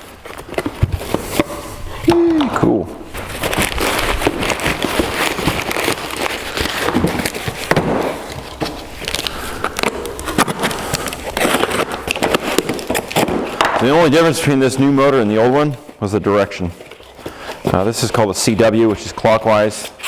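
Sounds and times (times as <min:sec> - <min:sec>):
packaging crackling and rustling: 0:00.0 - 0:20.0.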